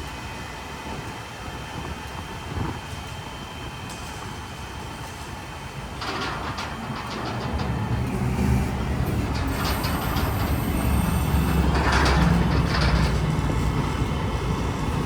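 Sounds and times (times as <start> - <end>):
garbage truck engine rumbling: 4.6 - 15.0
loud clattering: 6.0 - 15.0
mechanical rattling: 6.0 - 15.0.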